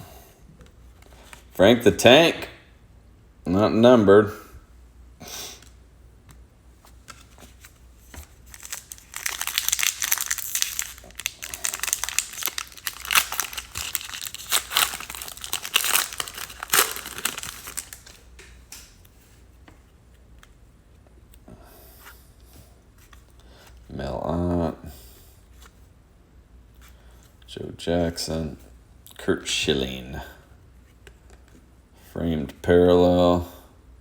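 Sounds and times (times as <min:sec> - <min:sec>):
foil wrapper crinkling and tearing: 0:08.2 - 0:18.4.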